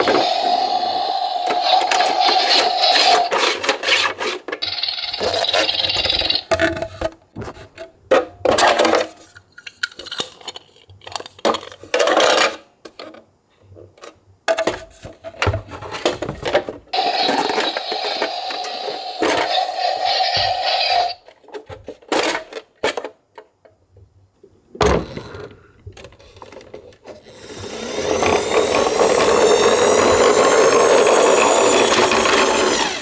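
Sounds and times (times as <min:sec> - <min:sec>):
plastic toy clicks and scraping: 0:00.0 - 0:07.1, 0:08.6 - 0:13.2, 0:17.0 - 0:23.2, 0:26.0 - 0:33.0.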